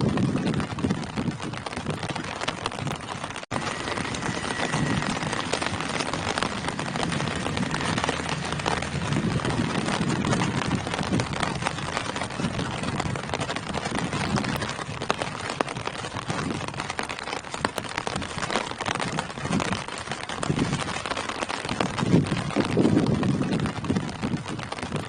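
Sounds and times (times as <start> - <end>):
rain falling on foliage: 0.0 - 25.0
low rumbling: 2.7 - 17.1.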